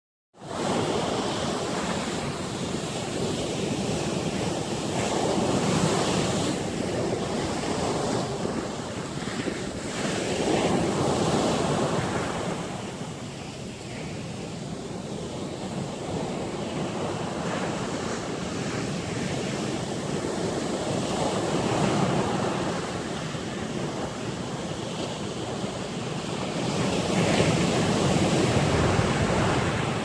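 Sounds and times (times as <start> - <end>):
wind buffeting microphone: 0.6 - 30.0
surf breaking on shore: 15.5 - 30.0.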